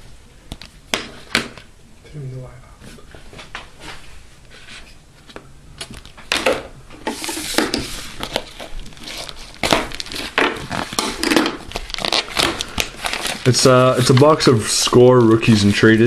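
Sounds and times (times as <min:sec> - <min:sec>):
packaging crinkling and tearing: 0:07.2 - 0:15.4.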